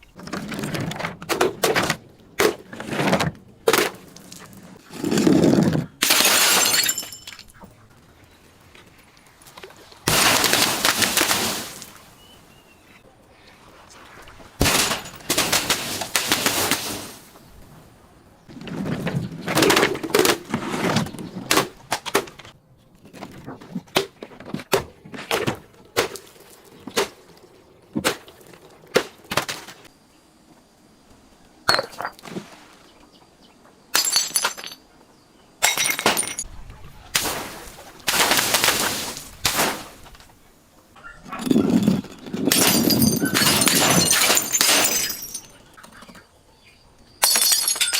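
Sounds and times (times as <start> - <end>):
glass crunching and shattering: 6.0 - 7.6, 10.1 - 12.0, 14.6 - 17.0, 33.9 - 34.8, 35.6 - 36.4, 38.1 - 40.0, 41.4 - 45.7, 47.2 - 47.9.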